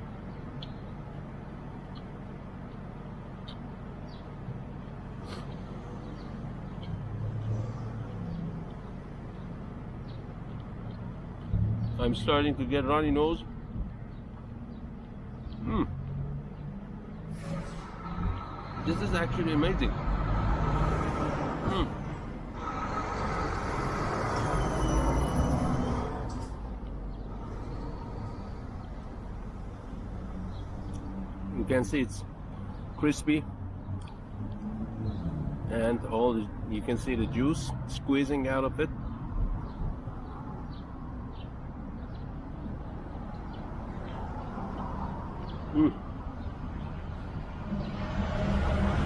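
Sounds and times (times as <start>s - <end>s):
city traffic rumble: 0.0s - 49.0s
vehicle passing by: 15.3s - 26.6s, 33.9s - 38.0s, 47.1s - 49.0s.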